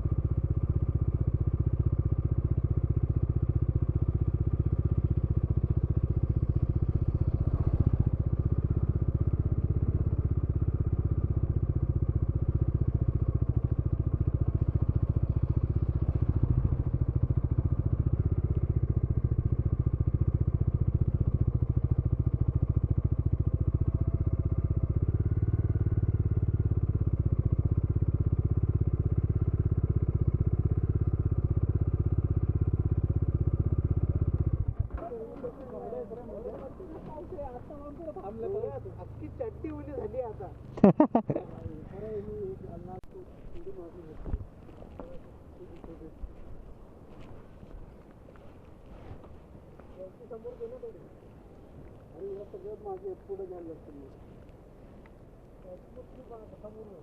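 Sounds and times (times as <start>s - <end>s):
motorcycle engine running: 0.0s - 47.8s.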